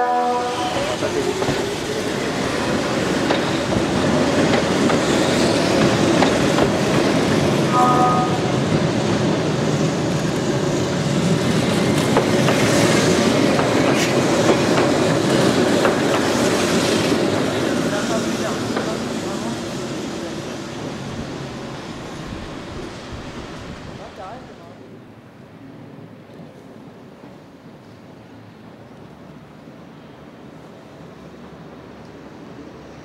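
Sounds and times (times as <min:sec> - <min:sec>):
train wheels clattering over joints: 0:03.0 - 0:07.1.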